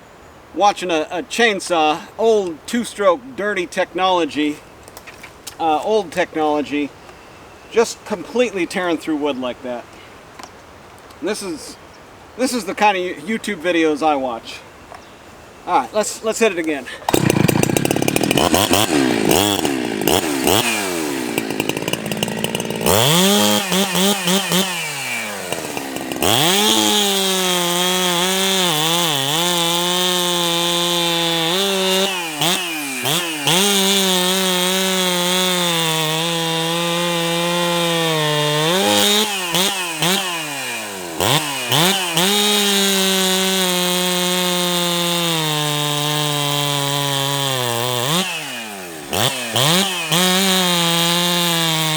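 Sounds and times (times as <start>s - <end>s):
chainsaw cutting wood: 16.6s - 51.9s.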